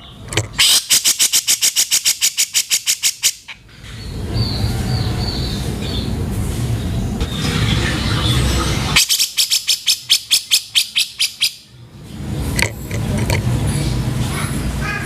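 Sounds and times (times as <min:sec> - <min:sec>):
bird calling sharp harsh notes: 0:00.0 - 0:03.6, 0:07.9 - 0:11.7.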